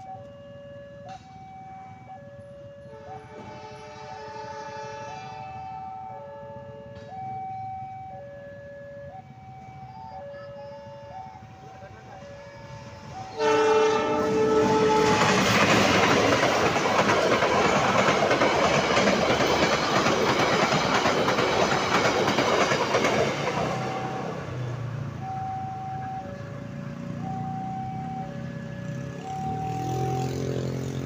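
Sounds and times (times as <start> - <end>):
two-tone warning alarm: 0.0 - 30.9
train rail noise and wheel clatter: 0.9 - 1.7, 2.4 - 7.4, 11.4 - 27.4
train horn: 2.8 - 7.1, 10.0 - 16.0, 23.5 - 24.7.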